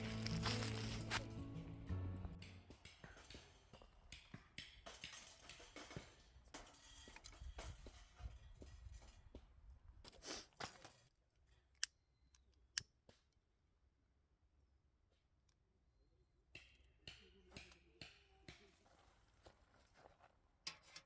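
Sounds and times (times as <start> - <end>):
faint rustling and handling: 0.0 - 1.4, 18.8 - 21.0.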